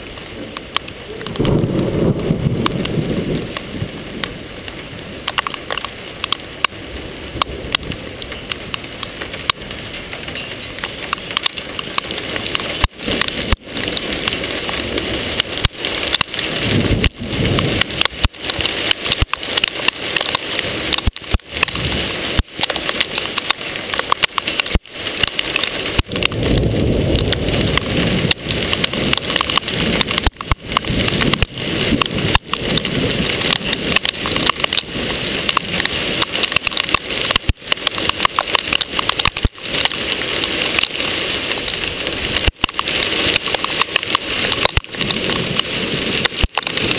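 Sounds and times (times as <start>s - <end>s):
hail and rain clattering: 0.0s - 46.9s
low rumble: 1.1s - 4.7s.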